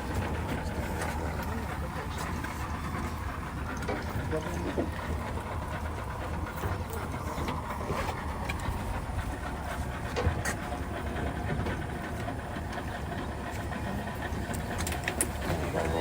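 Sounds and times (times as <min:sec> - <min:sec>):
vehicle engine and road rumble: 0:00.0 - 0:16.0
light clicks and rattles: 0:14.3 - 0:15.8.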